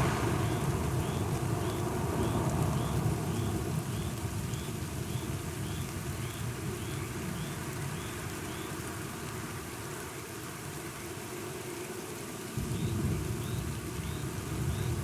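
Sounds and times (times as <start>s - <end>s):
rolling thunder rumble: 0.0s - 4.5s
steady rain hiss: 0.0s - 15.0s.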